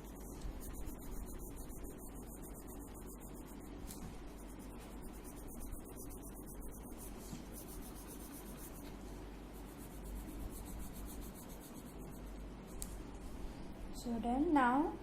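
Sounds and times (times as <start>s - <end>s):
pencil scratching on paper: 0.0s - 9.0s, 9.6s - 12.4s.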